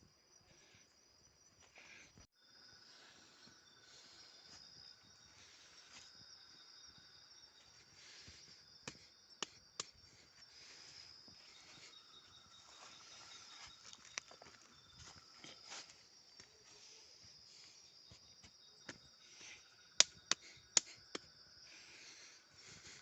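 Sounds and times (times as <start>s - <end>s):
faint insects chirping: 0.0s - 23.0s
sharp clicks: 20.0s - 21.3s.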